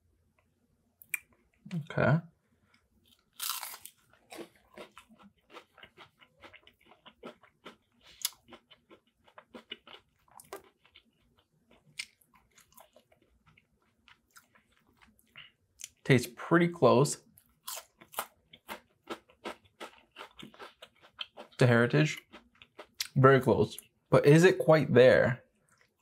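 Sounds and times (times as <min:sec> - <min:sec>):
crunchy bite and chewing: 0:03.1 - 0:15.2, 0:17.5 - 0:21.6.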